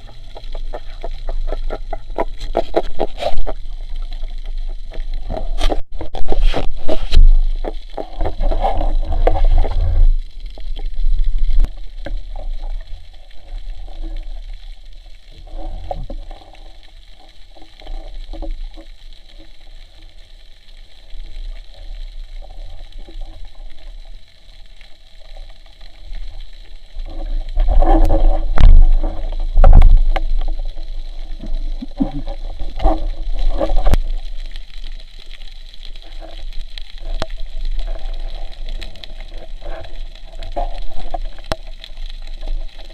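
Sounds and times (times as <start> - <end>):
muffled underwater gurgling: 0.0 - 42.9.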